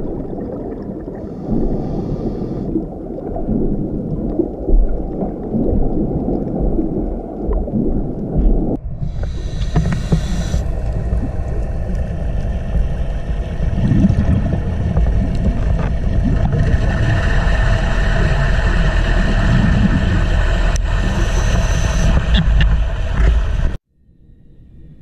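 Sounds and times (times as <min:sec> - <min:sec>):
underwater rumble of moving water: 0:00.0 - 0:25.0
underwater hiss: 0:01.1 - 0:02.8, 0:09.0 - 0:14.3.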